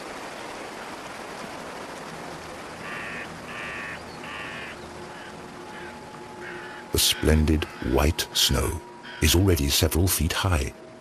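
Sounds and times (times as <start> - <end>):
steady background hiss: 0.0 - 11.0
bird calling: 2.8 - 9.7.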